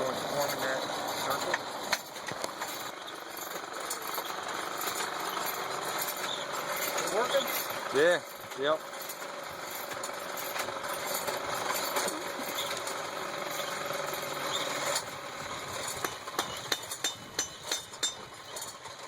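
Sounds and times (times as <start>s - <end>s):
hammer striking steel on anvil: 16.0s - 18.3s.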